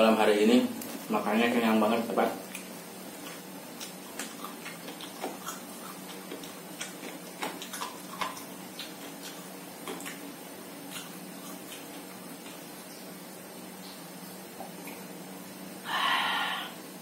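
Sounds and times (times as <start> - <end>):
steady low hum: 0.0 - 17.0
man chewing food: 2.4 - 15.2.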